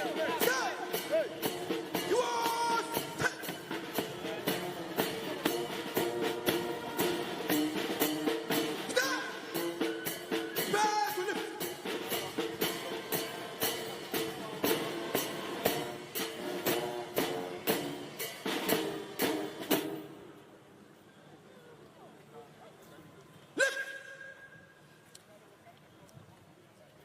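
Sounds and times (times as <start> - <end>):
drum strikes: 0.0 - 20.4
band music melody: 0.0 - 20.5.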